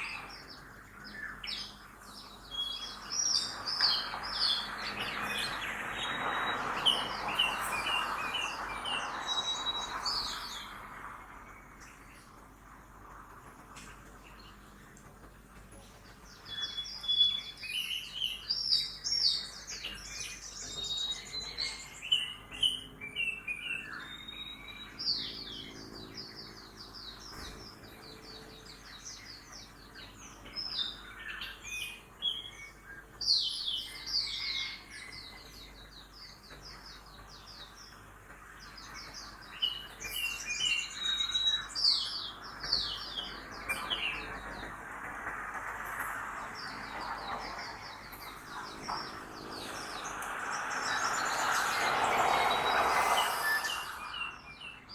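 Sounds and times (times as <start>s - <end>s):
songbirds chirping and trilling: 0.0s - 54.9s
faint traffic hum: 34.9s - 54.9s.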